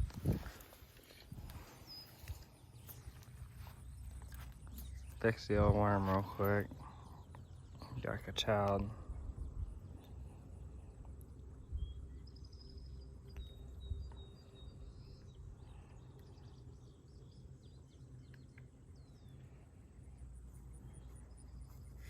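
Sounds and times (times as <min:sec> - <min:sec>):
low rumble: 0:08.9 - 0:21.8
faint bird chirps: 0:09.0 - 0:22.0.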